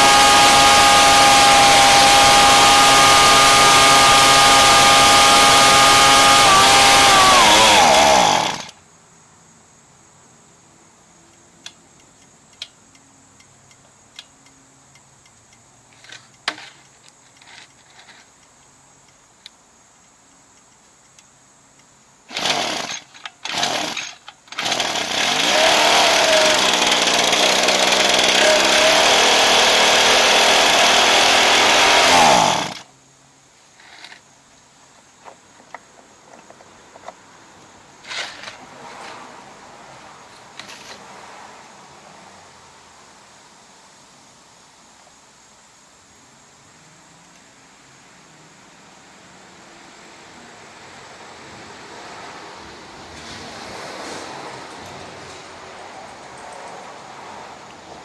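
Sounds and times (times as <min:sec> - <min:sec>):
small gas engine running: 0:00.0 - 0:08.7, 0:22.3 - 0:32.8.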